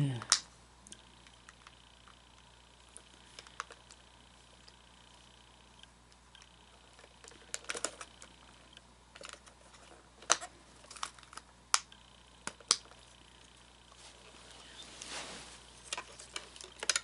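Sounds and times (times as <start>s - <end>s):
plastic parts clicking and knocking: 6.4s - 8.3s, 9.1s - 13.0s, 15.9s - 17.0s.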